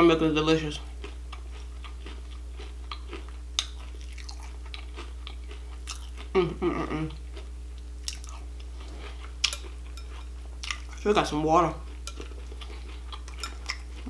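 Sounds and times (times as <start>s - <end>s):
person chewing crunchy cereal: 0.8s - 6.4s, 7.1s - 14.0s
person humming: 6.3s - 7.2s.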